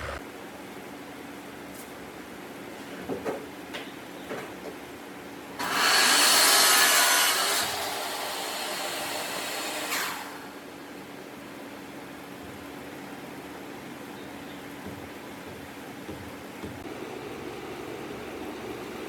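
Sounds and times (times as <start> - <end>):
power tool running: 0.0 - 0.2, 5.6 - 10.5, 16.8 - 19.0.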